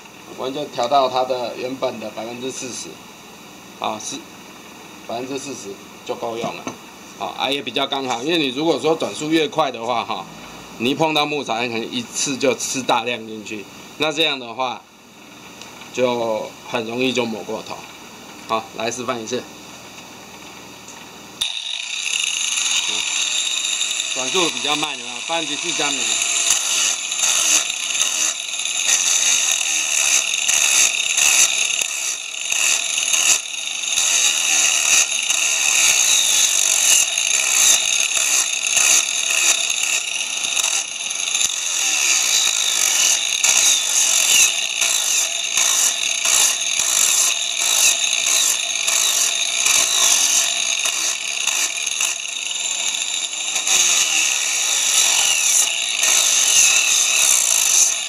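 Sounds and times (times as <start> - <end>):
grinder sanding wood: 21.4 - 58.0.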